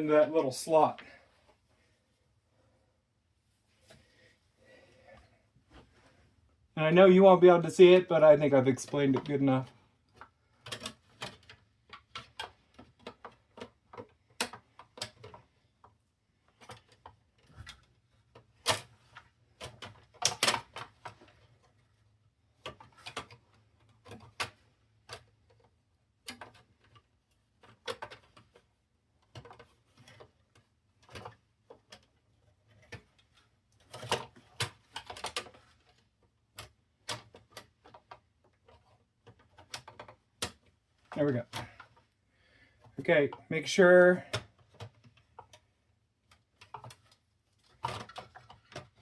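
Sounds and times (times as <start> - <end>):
plastic and metal parts clicking: 8.8 - 21.9, 22.5 - 42.2, 44.2 - 49.0.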